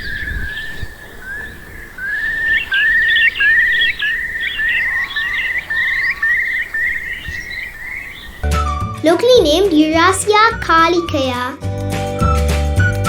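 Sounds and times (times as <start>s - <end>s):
faint high chirps: 0.0s - 8.4s
curlew trilling call: 0.0s - 8.7s.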